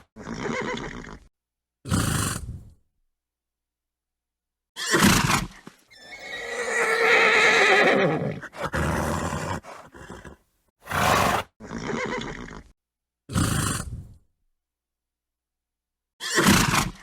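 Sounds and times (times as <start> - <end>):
horse whinny: 4.8 - 12.7.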